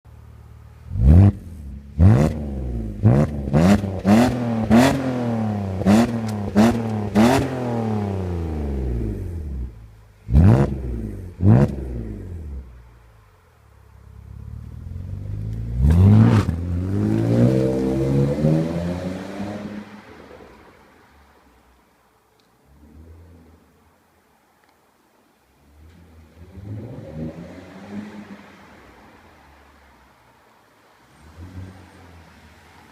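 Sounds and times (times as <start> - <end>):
car engine revving: 0.7 - 12.8, 14.0 - 20.3, 25.7 - 29.2.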